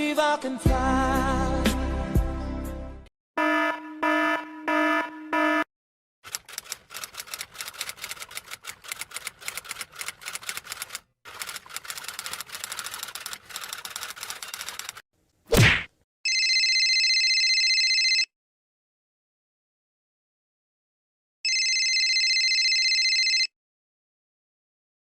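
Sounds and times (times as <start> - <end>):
electronic alarm beeps: 3.4 - 5.7
keyboard typing clicks: 6.3 - 15.0.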